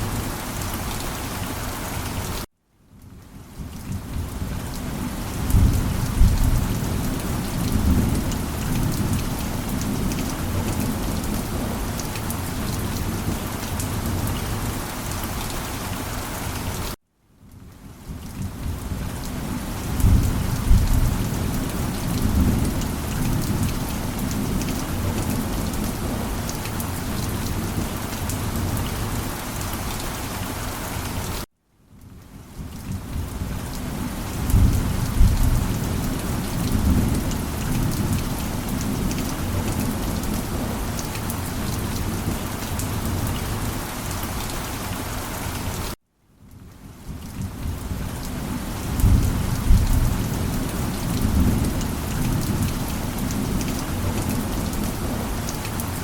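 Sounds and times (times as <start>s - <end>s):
steady rain: 0.0s - 56.0s
thunder rumbling: 5.0s - 12.6s, 19.8s - 29.1s, 34.4s - 41.0s, 48.8s - 55.2s.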